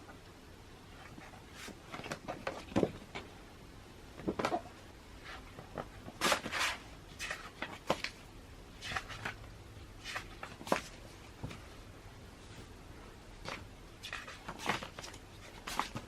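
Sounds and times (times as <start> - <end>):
magazine pages turning: 8.8 - 9.4, 13.4 - 16.0.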